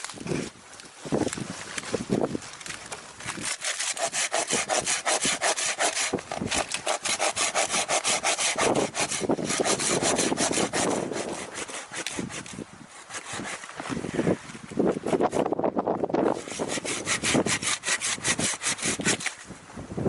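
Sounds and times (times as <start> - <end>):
hand saw cutting wood: 3.2 - 15.6, 16.2 - 19.5.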